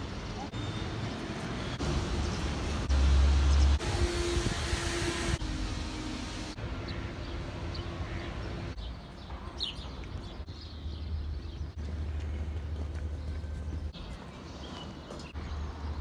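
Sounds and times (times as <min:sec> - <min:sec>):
birds chirping: 0:06.8 - 0:16.0.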